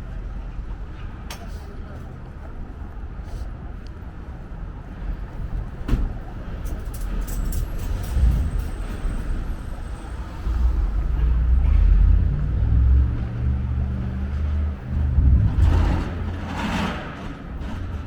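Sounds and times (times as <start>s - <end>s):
vehicle engine running: 8.4s - 18.0s.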